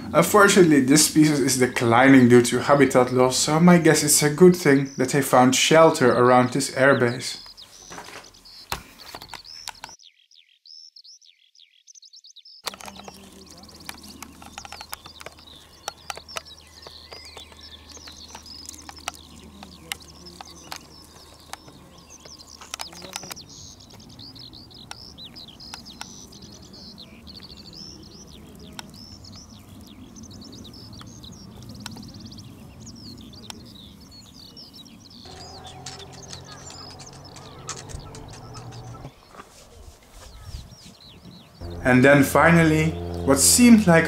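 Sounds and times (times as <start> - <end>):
songbirds singing and chirping: 0.0 - 44.0
faint clicks: 12.6 - 24.0, 35.3 - 39.1.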